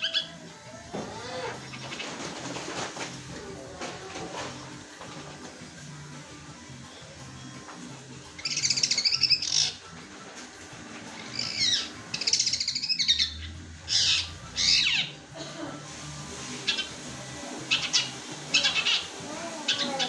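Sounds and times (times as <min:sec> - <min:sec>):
bird chattering high chirps: 0:08.4 - 0:09.8, 0:11.2 - 0:15.1, 0:17.7 - 0:20.0.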